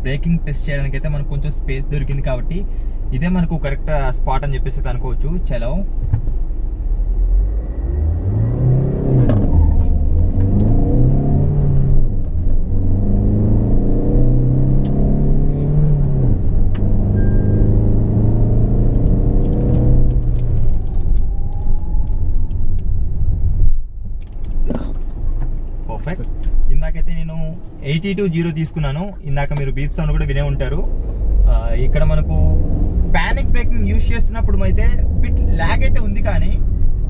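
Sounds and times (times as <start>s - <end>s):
car engine accelerating: 6.2s - 37.0s
short beep: 17.2s - 17.8s.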